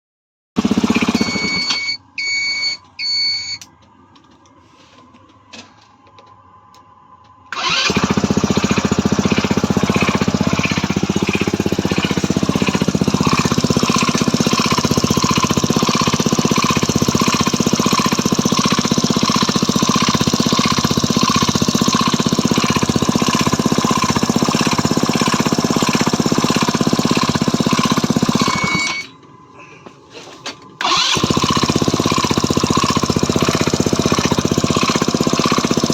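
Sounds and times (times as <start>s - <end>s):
scooter engine knocking: 0.6s - 1.6s, 7.6s - 28.9s, 30.8s - 35.9s
scooter engine starting: 0.6s - 2.0s, 7.5s - 29.2s, 30.8s - 35.9s.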